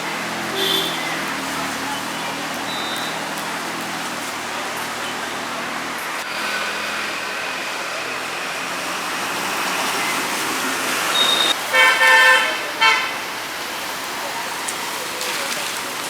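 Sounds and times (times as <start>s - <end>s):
road traffic noise: 0.0s - 16.0s
car horn honking: 0.5s - 1.3s, 11.1s - 13.2s.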